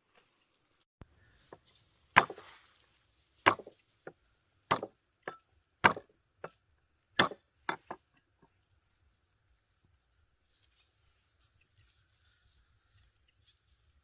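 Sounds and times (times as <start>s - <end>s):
blade chopping wood: 2.2s - 2.6s, 3.5s - 6.6s, 7.2s - 8.0s.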